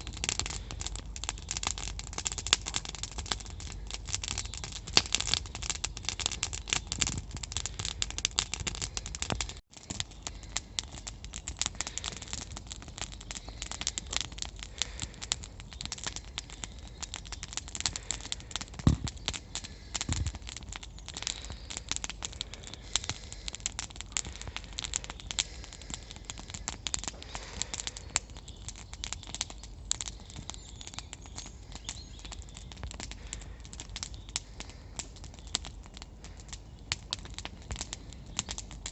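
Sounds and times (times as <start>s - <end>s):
campfire crackling and snapping: 0.0s - 38.9s
dull knocks: 18.8s - 19.2s.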